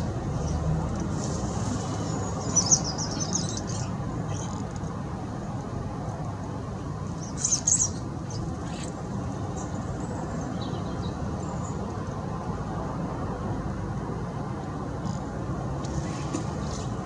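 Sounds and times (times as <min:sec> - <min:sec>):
small birds chirping: 0:00.0 - 0:04.8, 0:07.1 - 0:12.1.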